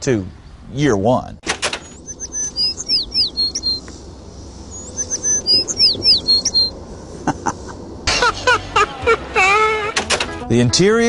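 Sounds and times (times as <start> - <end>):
songbird singing: 0.0 - 1.1, 1.7 - 11.0.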